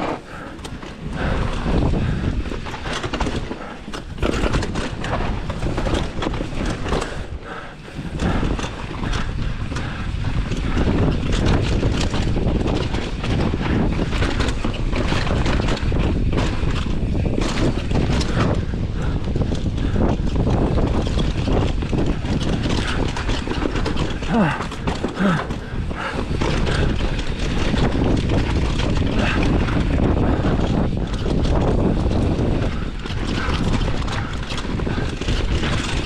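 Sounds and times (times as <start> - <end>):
bike chain and frame rattling: 0.0 - 36.0
wind rush over microphone: 0.0 - 36.0
tyre roar on dirt: 8.1 - 36.0.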